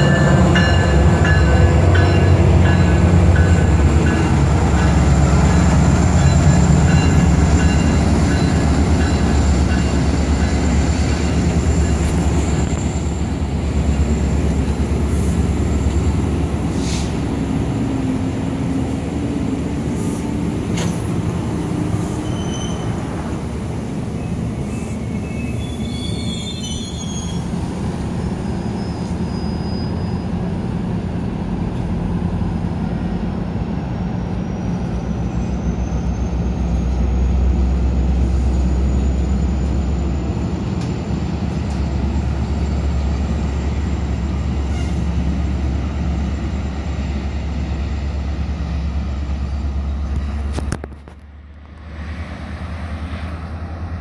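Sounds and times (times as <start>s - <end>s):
wheels rumbling on rail: 0.0s - 54.0s
high wheel squeals: 22.0s - 23.1s, 24.2s - 27.6s, 28.2s - 30.4s.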